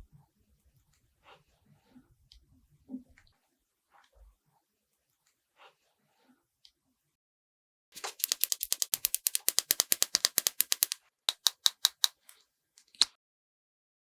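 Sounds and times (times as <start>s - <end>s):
rapid crisp tapping: 8.0s - 12.3s
single clicks: 8.2s - 13.2s.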